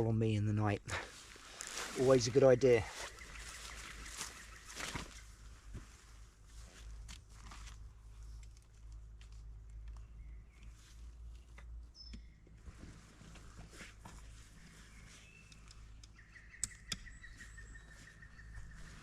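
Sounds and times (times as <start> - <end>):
sharp clicks: 15.5 - 17.1.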